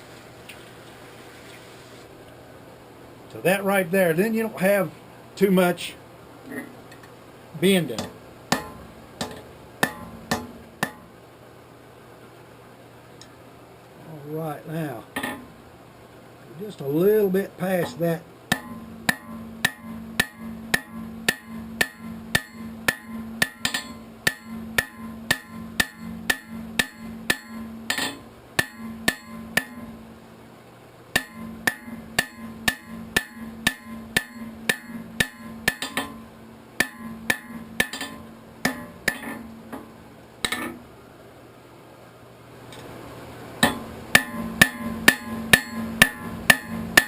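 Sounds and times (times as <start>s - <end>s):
hammer striking hot steel on anvil: 7.9s - 11.1s, 15.2s - 15.5s, 17.8s - 30.0s, 31.1s - 40.8s, 43.6s - 47.0s.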